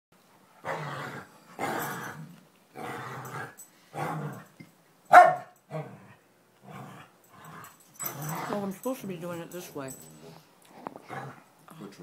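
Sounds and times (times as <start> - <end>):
dog growling in play: 0.6 - 4.5, 5.7 - 8.8, 10.0 - 12.0.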